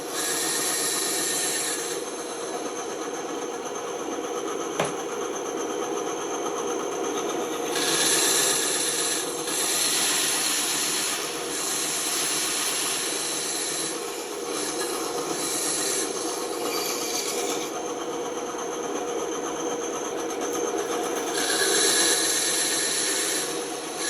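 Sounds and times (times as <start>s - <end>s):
band saw cutting wood: 0.0s - 2.3s, 4.8s - 5.1s, 7.6s - 17.8s, 21.3s - 24.0s.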